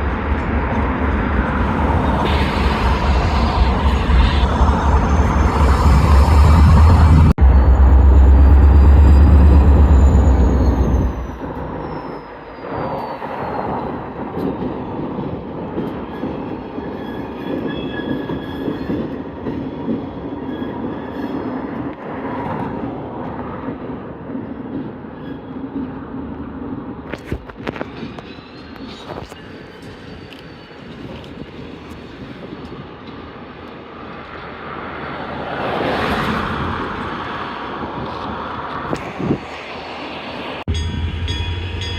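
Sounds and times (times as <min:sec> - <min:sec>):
locomotive rumble: 0:00.0 - 0:12.3
freight cars rolling by: 0:00.0 - 0:12.4
faint high wheel squeal: 0:01.6 - 0:14.2, 0:15.9 - 0:21.7.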